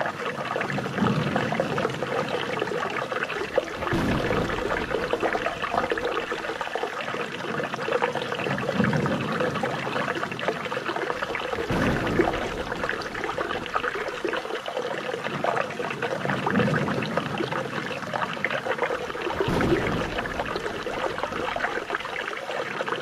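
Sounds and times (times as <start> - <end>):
deep water gushes: 0.0 - 23.0
water trickling and splashing: 0.0 - 23.0.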